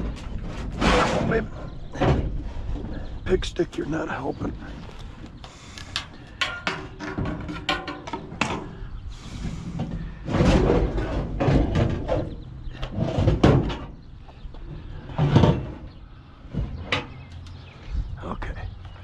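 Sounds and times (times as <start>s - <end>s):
heavy scrap scraping and clattering: 0.0s - 3.2s, 5.8s - 14.0s, 14.6s - 17.2s.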